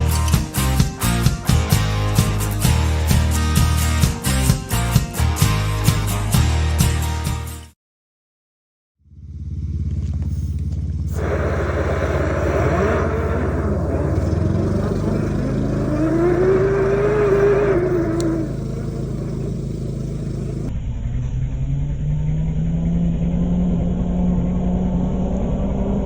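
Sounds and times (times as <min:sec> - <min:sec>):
engine running steadily: 0:09.0 - 0:26.0
rushing noise: 0:11.1 - 0:20.7.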